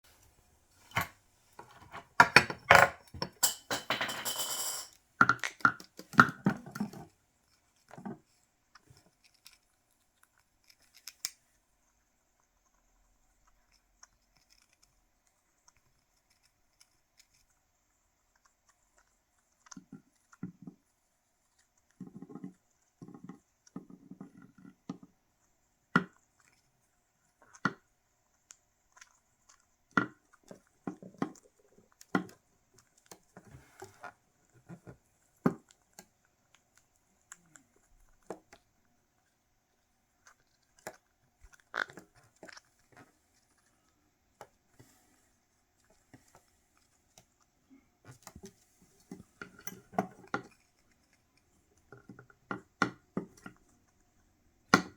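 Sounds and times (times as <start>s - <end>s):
parrot gnawing cuttlebone: 5.2s - 44.8s.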